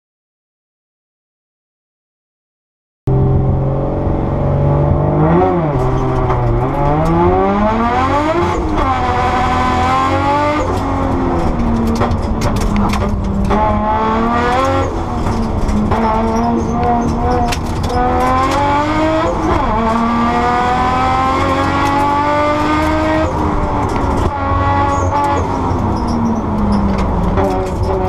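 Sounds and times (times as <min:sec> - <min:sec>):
race car engine revving: 0:03.1 - 0:28.0.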